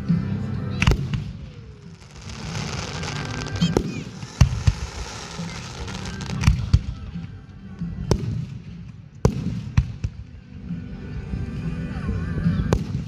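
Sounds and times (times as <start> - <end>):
fireworks bursting: 0.3 - 10.4.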